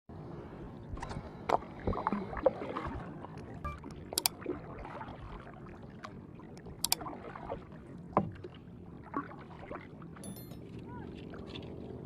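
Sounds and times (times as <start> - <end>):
water sloshing and lapping: 0.4 - 12.0
sharp clicks: 3.7 - 4.3.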